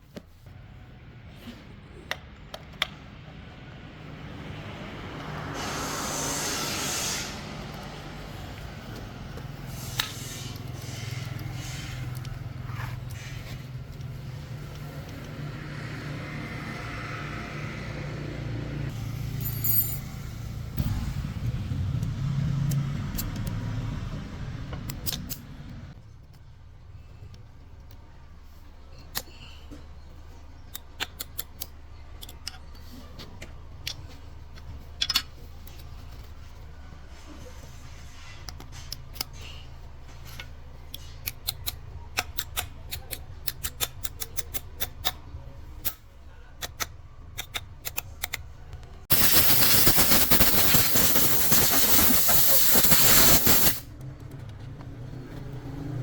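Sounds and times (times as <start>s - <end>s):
metallic clicks and taps: 40.4s - 45.2s, 46.6s - 48.5s.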